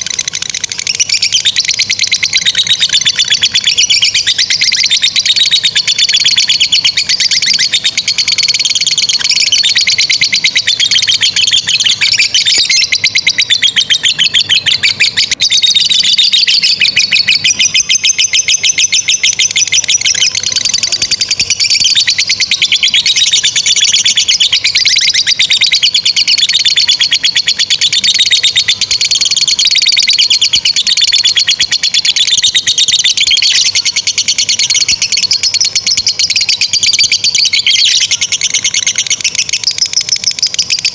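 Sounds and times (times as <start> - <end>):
lovebirds chattering trills: 0.0 - 40.9.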